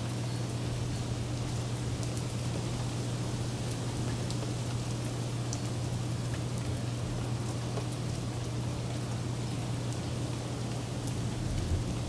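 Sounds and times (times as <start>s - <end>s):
raindrops ticking on surfaces: 0.0s - 12.0s
steady rain falling: 0.0s - 12.0s.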